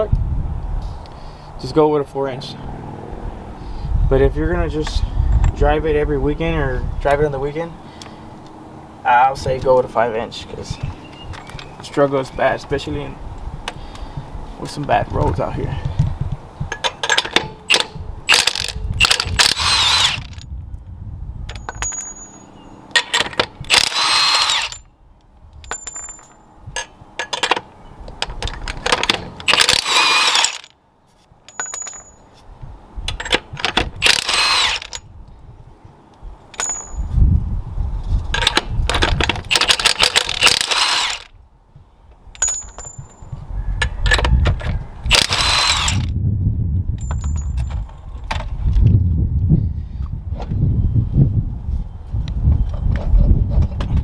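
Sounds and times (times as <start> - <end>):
impact wrench whine: 16.7 - 20.4, 21.6 - 24.9, 28.8 - 30.7, 33.2 - 35.0, 38.4 - 41.3, 45.1 - 46.1
metallic clinks of nuts and tools: 16.7 - 20.4, 21.5 - 24.9, 25.6 - 30.7, 31.4 - 32.4, 33.1 - 35.1, 36.5 - 37.2, 38.3 - 41.3, 42.3 - 46.1, 47.0 - 48.4.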